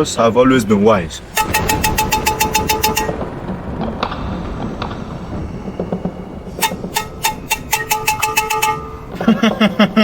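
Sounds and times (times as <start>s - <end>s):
low background rumble: 0.0s - 10.0s
metal bell ringing rapidly: 1.4s - 3.2s, 6.6s - 9.0s.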